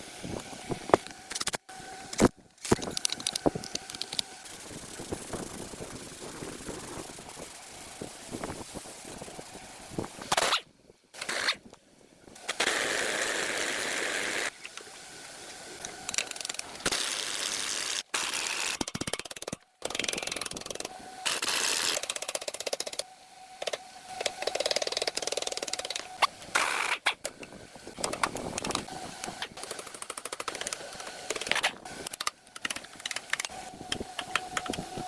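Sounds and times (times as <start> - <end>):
steady hissing noise: 0.0 - 10.3, 12.2 - 18.1
clicking and rattling mechanisms: 0.2 - 13.4, 14.5 - 35.0.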